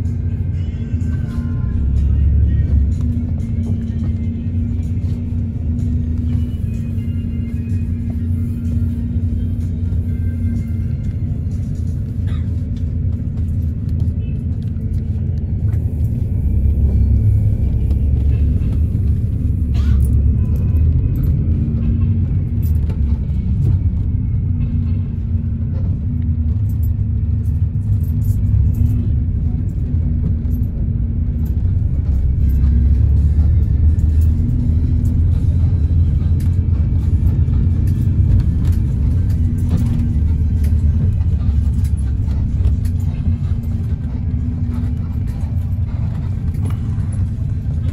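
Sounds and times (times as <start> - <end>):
bus engine rumble: 0.0 - 47.9
faint background music: 0.0 - 47.9
road noise: 0.0 - 47.9.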